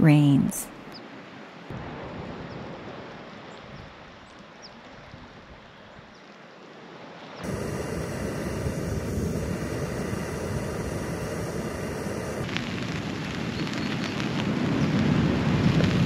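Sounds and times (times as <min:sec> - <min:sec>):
steady rushing noise: 0:07.4 - 0:16.0
rain pattering on a tent: 0:12.4 - 0:16.0.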